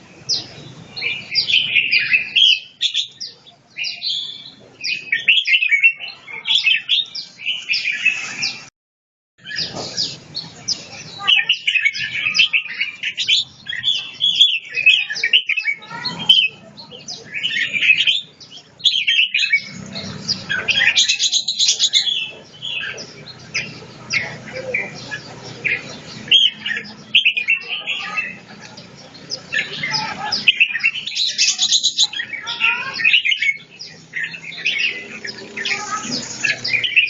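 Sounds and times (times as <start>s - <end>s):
bird singing chattering phrases: 0.0s - 8.7s, 9.4s - 37.0s.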